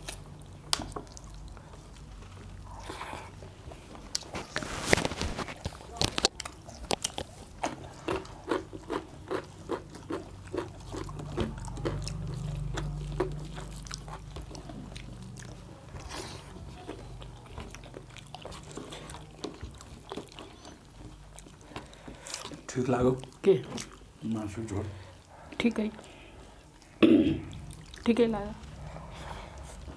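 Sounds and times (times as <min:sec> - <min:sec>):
wet chewing mouth clicks: 0:05.3 - 0:24.2.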